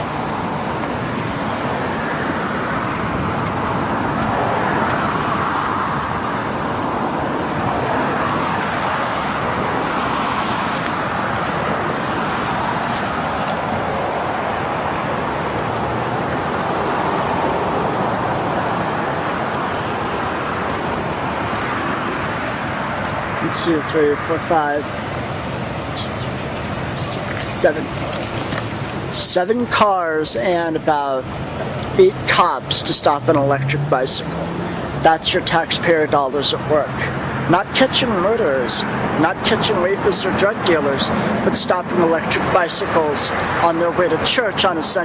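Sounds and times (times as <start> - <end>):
cars passing: 0.0 - 45.0
road traffic noise: 0.0 - 45.0.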